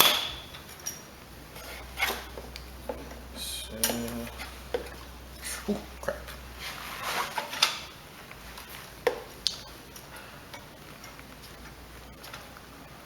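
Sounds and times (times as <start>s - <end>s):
metal tools clinking: 0.0s - 1.1s
rustling: 6.2s - 9.0s.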